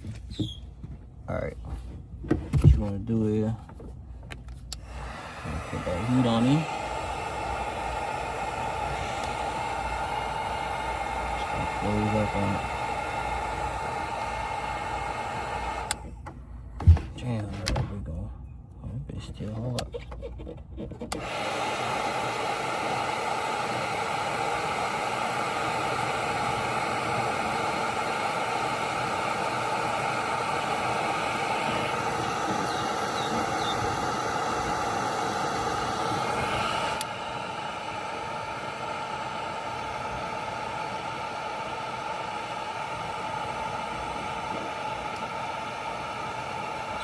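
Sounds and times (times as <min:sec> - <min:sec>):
heat gun blowing: 0:04.6 - 0:16.2, 0:21.0 - 0:47.0.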